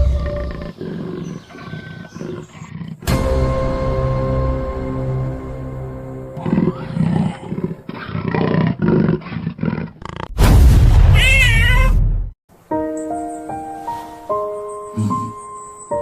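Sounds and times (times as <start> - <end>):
animal growls: 0.4 - 3.1, 6.4 - 10.3
dramatic music score: 3.0 - 7.9.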